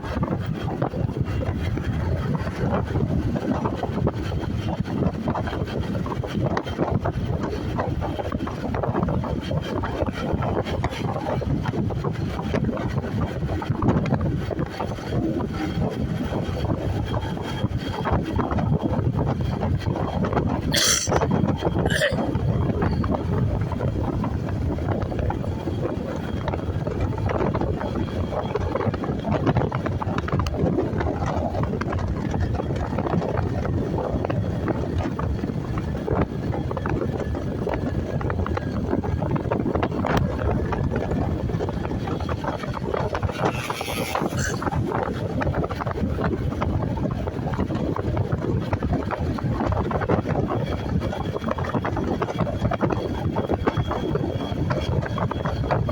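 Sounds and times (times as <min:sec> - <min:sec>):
wind rushing over microphone: 0:00.0 - 0:55.9
motorcycle running: 0:22.0 - 0:55.9.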